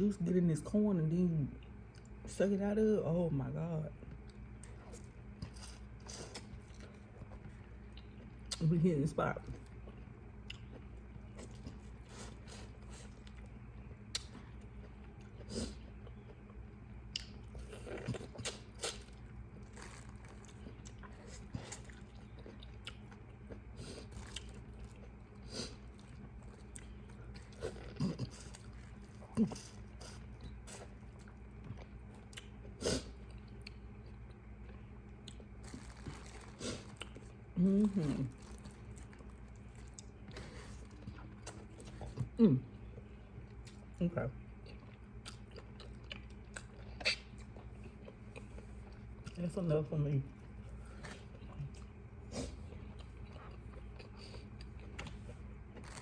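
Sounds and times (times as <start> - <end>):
steady low hum: 0.0 - 56.0
chewing and biting: 4.2 - 8.6, 9.5 - 49.4, 50.4 - 56.0.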